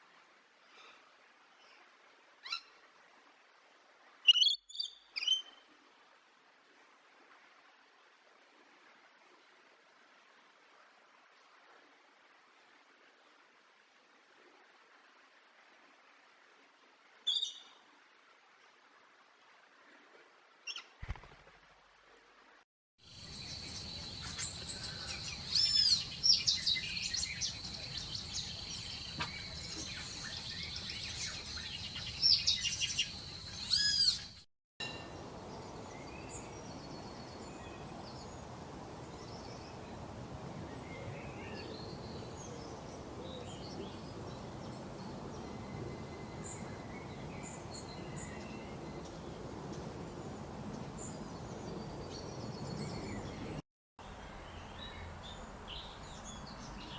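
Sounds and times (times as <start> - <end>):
outdoor background hiss: 0.0 - 56.9
birds singing whistled phrases: 4.3 - 5.6
faint bird chirps: 17.3 - 17.8.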